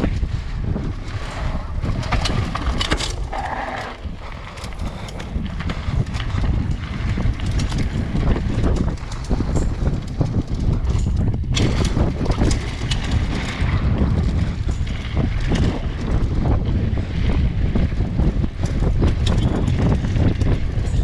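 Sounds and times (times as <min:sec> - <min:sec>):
bike rattling and clacking: 0:00.0 - 0:21.0
wind buffeting microphone: 0:00.0 - 0:21.0
tyres rumbling on dirt: 0:00.7 - 0:08.0.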